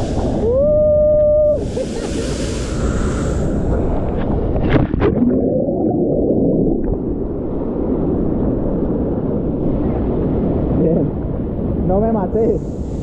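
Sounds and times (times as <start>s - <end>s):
water gurgling: 0.0s - 9.2s
rushing water rumble: 0.0s - 13.0s.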